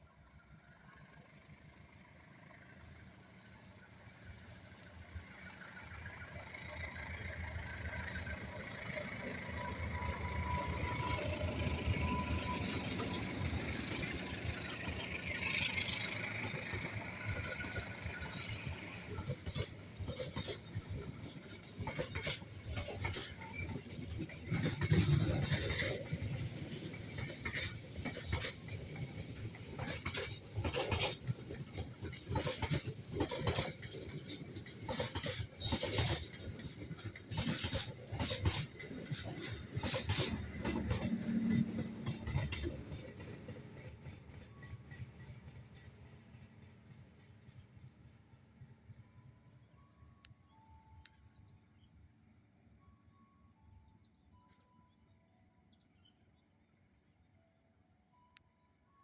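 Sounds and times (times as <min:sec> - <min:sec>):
train rushing rumble: 0:00.0 - 0:49.0
wheel clacks over rail joints: 0:06.5 - 0:46.0.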